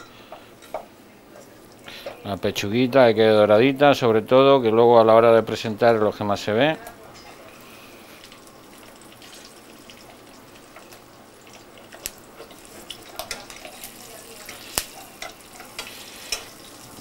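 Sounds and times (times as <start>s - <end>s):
meat sizzling in oil: 7.4s - 17.0s
oil crackles and clicks: 8.2s - 17.0s.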